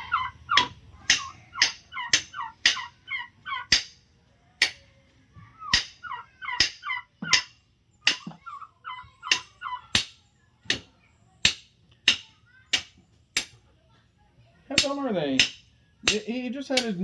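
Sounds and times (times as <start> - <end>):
turkey gobbling: 0.0 - 3.9, 5.5 - 10.0
sharp knocks: 6.6 - 8.4.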